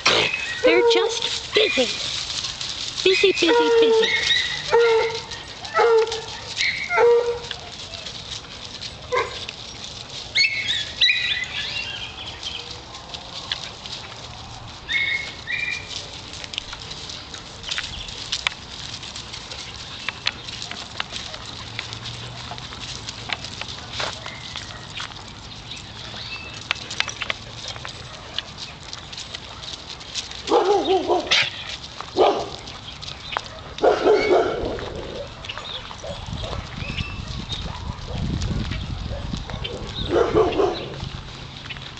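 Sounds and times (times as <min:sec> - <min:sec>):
dogs' high calls: 0:00.0 - 0:14.0, 0:14.7 - 0:41.7
paw patter and scuffling: 0:00.0 - 0:41.9
dog barking: 0:03.5 - 0:07.5, 0:09.1 - 0:09.4, 0:30.5 - 0:31.5, 0:32.2 - 0:32.6, 0:33.5 - 0:36.6, 0:39.1 - 0:40.9.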